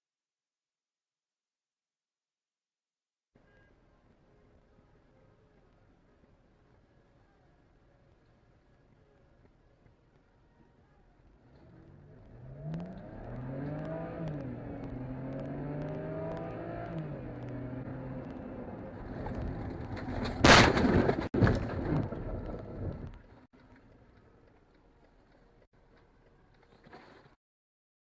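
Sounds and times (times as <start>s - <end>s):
car engine running: 11.5s - 20.0s
collision crash: 18.9s - 23.2s
bangs: 18.9s - 23.3s.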